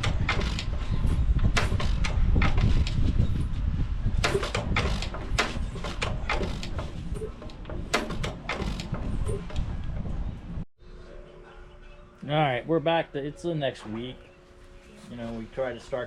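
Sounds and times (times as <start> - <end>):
engine exhaust pops: 4.2 - 10.0.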